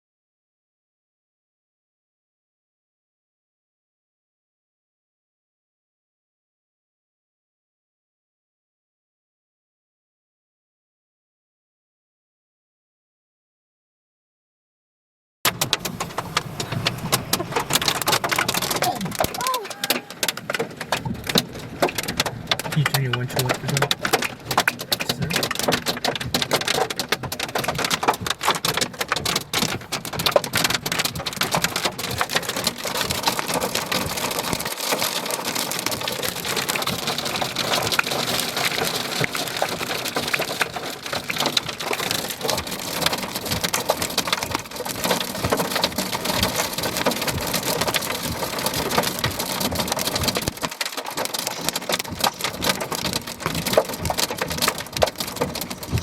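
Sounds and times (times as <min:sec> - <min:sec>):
heavy rain on hard surface: 0:15.5 - 0:56.0.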